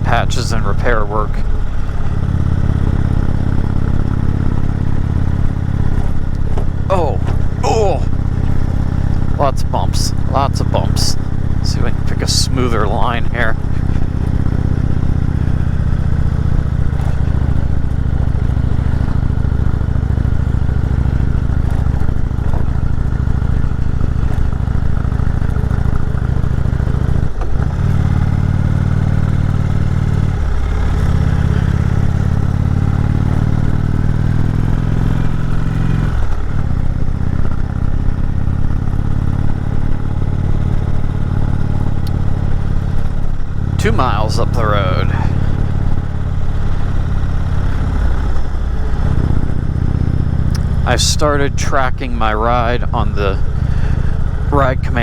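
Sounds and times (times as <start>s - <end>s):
motorcycle engine pulling uphill: 0.0s - 55.0s.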